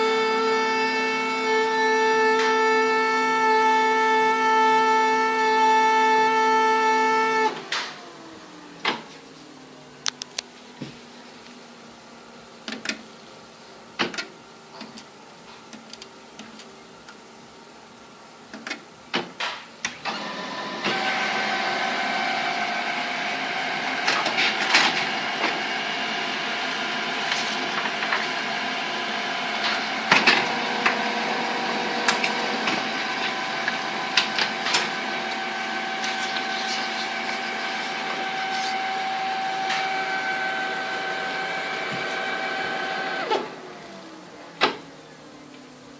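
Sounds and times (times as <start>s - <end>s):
laser printer whining: 0.0s - 12.4s, 19.9s - 45.9s
printer clicking: 22.4s - 25.6s, 26.6s - 28.8s, 29.6s - 38.7s.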